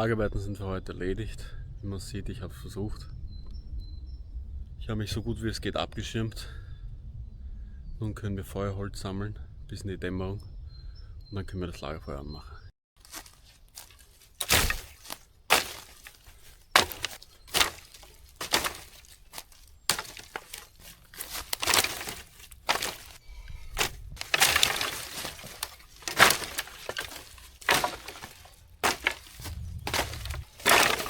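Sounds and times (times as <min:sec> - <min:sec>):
sticks snapping: 0:13.0 - 0:31.0.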